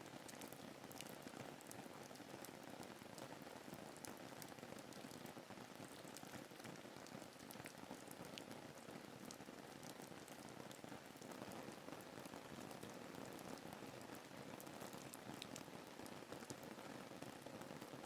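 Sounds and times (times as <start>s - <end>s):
rain hiss with drop ticks: 6.1s - 16.7s.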